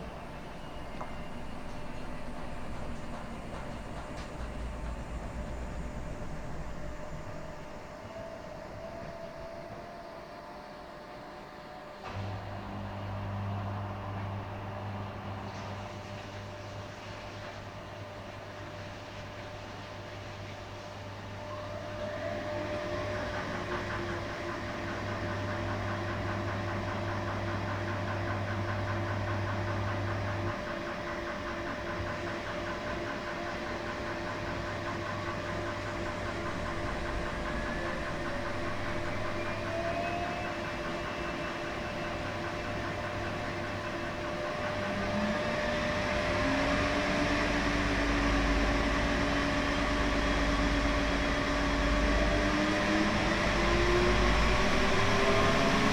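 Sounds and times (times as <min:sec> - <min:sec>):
motor whine rising in pitch: 0:00.0 - 0:10.4, 0:34.9 - 0:55.9
washing machine running: 0:00.0 - 0:55.9.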